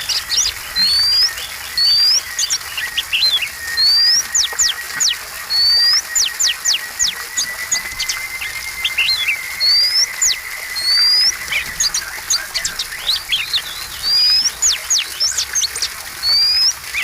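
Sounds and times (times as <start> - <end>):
songbird singing whistles: 0.0 - 17.0
thin steady high tone: 0.0 - 17.0.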